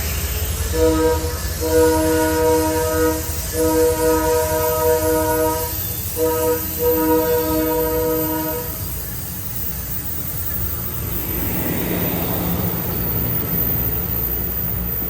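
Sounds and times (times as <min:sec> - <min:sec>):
train rumbling: 0:00.0 - 0:15.0
locomotive air horn blasts: 0:00.6 - 0:09.0.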